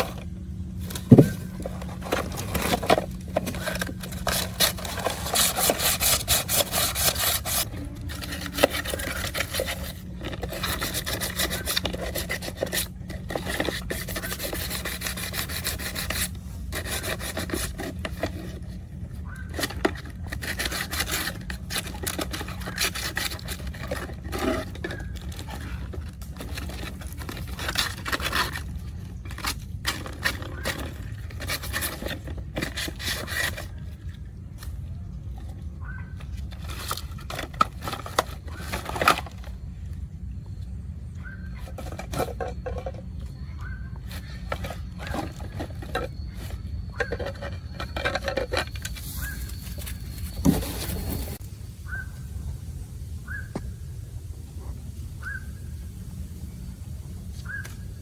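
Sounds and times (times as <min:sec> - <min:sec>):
hand scraping a hard surface: 0:00.0 - 0:18.9, 0:44.1 - 0:51.5.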